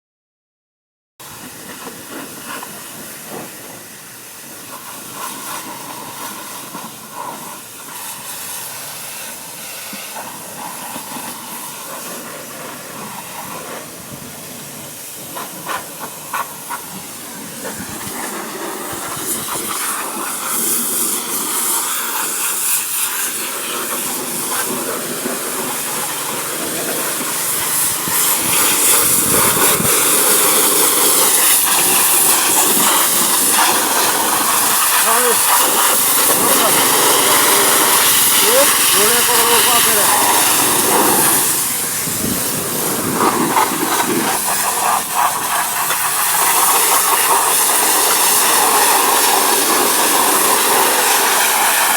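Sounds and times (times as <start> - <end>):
water spraying on engine: 1.2 - 51.9.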